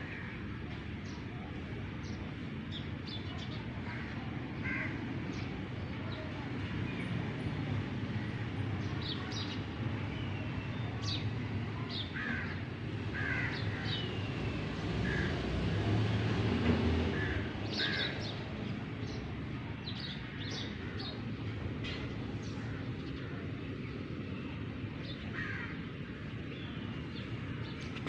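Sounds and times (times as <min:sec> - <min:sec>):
birds calling: 0:08.2 - 0:16.1, 0:17.1 - 0:28.0.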